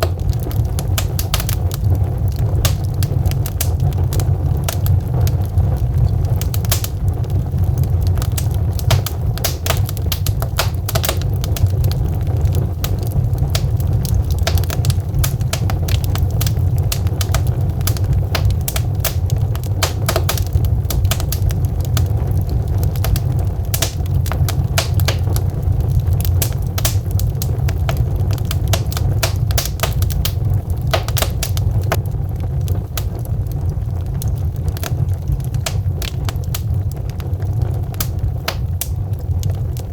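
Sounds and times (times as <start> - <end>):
burning logs crackling: 0.0 - 39.9
fire low rumble: 0.0 - 39.9.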